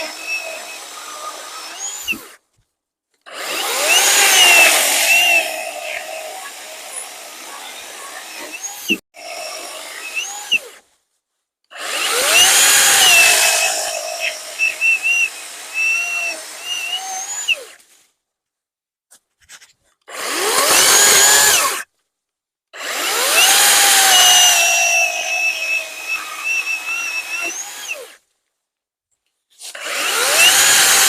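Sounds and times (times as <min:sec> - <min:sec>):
motor spinning up whine: 0:00.0 - 0:02.2, 0:03.3 - 0:10.6, 0:11.8 - 0:17.6, 0:22.8 - 0:28.1, 0:29.9 - 0:31.0
chainsaw cutting logs: 0:00.0 - 0:02.4, 0:03.2 - 0:10.8, 0:11.7 - 0:17.8, 0:20.1 - 0:21.9, 0:22.8 - 0:28.2, 0:29.6 - 0:31.0.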